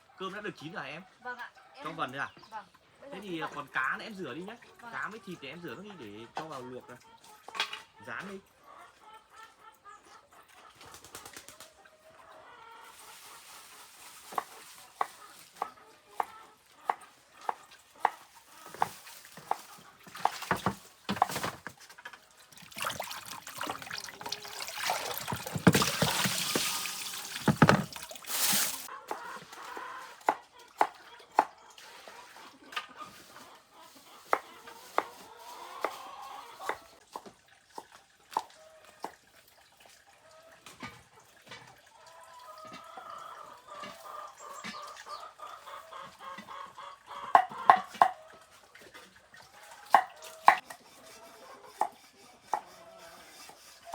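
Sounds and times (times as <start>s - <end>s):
tap water running: 18.7s - 28.9s.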